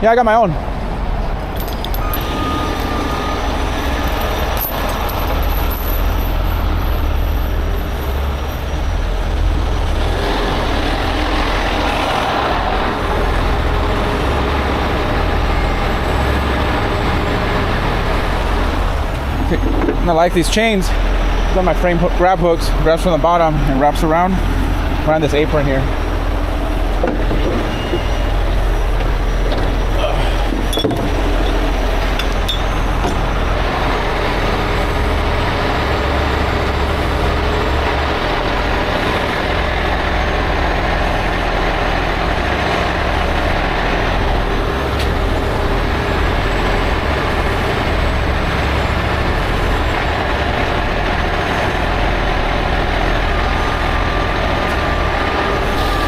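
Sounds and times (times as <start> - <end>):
diesel truck engine running: 0.0 - 56.0
metallic clinks: 1.5 - 3.1, 3.9 - 6.4.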